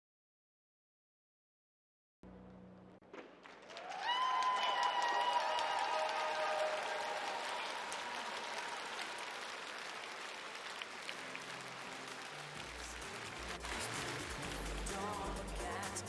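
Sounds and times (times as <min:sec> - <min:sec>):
music: 0:02.2 - 0:03.2, 0:11.0 - 0:16.0
audience applauding: 0:03.2 - 0:16.0.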